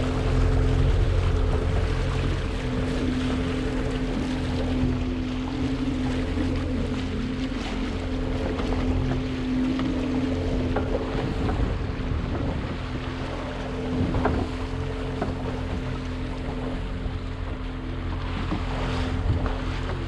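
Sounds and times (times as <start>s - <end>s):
motorboat engine idling: 0.0s - 20.0s
water sloshing against hull: 0.0s - 20.0s
wind buffeting microphone: 0.0s - 20.0s.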